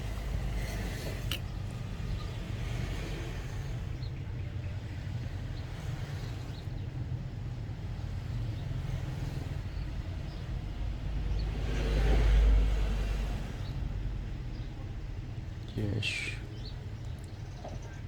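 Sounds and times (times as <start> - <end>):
road traffic rumble: 0.0 - 18.0
vehicle passing: 7.4 - 15.8.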